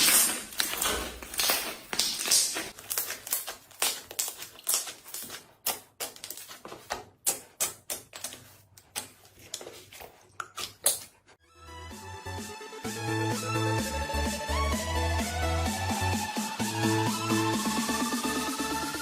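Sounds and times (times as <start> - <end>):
slime clicking and popping: 0.0 - 6.5.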